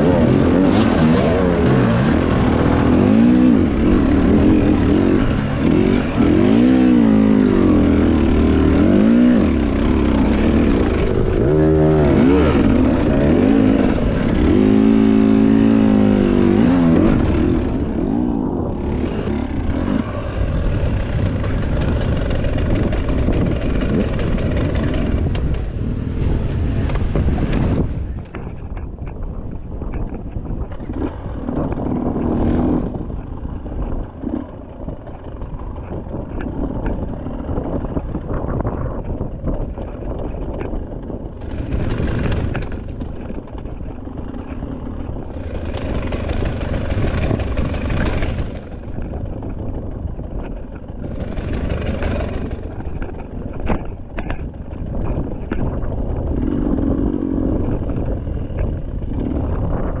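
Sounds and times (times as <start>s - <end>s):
dirt bike engine revving: 0.0s - 25.4s, 32.0s - 33.2s, 41.4s - 43.3s, 45.3s - 49.3s, 51.0s - 53.4s.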